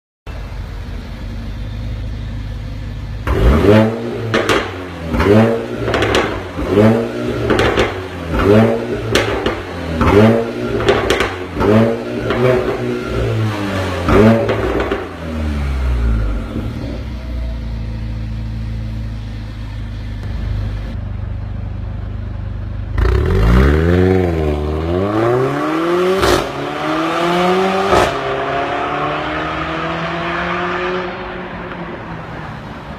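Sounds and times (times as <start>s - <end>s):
car engine revving: 1.4s - 21.5s, 22.1s - 32.9s
exhaust cracks: 3.2s - 17.0s.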